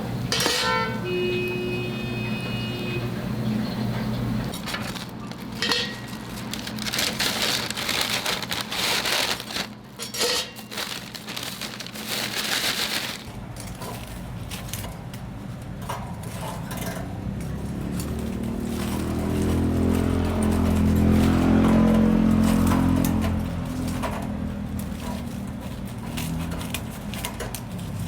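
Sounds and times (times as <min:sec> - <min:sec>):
fried chicken crackling: 0:04.5 - 0:13.4.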